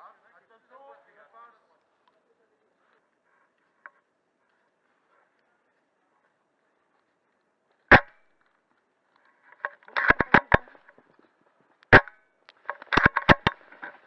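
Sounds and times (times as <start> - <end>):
airsoft rifle shots: 7.9 - 8.3, 11.9 - 12.2.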